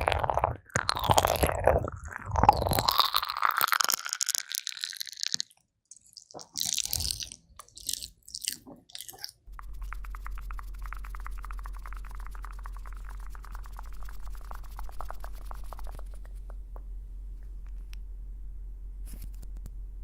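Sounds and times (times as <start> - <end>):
ear pick scratching and crackling: 6.3 - 16.7
low hum: 9.5 - 20.0.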